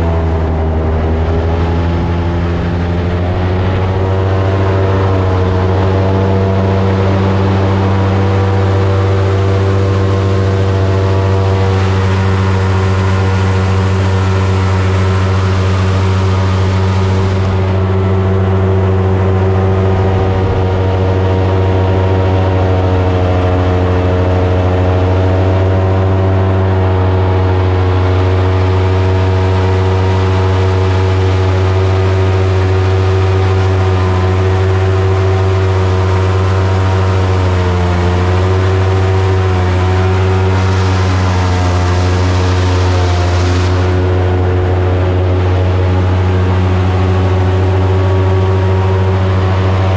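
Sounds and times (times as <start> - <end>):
boat engine running: 0.0 - 49.9.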